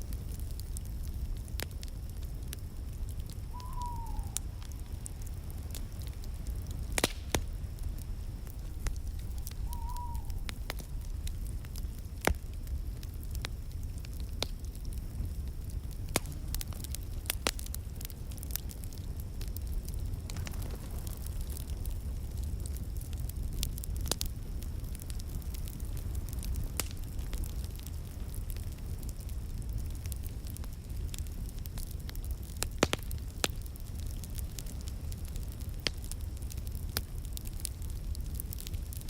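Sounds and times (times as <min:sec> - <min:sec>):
wood fire crackling: 0:00.0 - 0:39.0
falling whistle-like tones: 0:03.5 - 0:04.5, 0:08.9 - 0:10.6.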